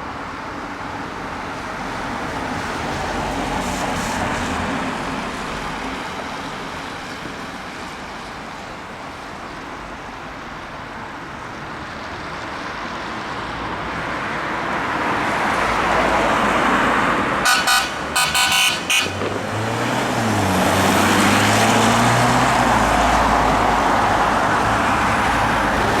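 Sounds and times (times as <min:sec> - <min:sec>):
road traffic noise: 0:00.0 - 0:26.0
vehicle horn short blasts: 0:17.4 - 0:19.2.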